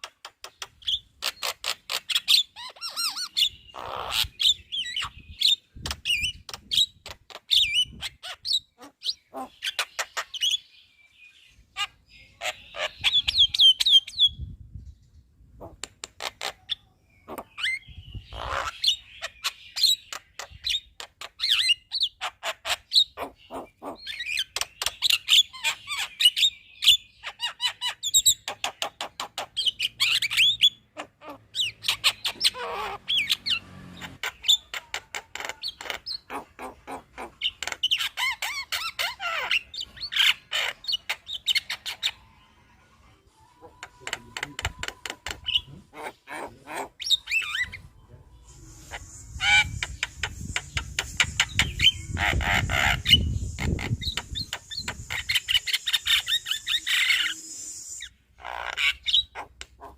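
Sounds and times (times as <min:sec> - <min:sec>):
bird chattering song: 0:00.0 - 0:59.9.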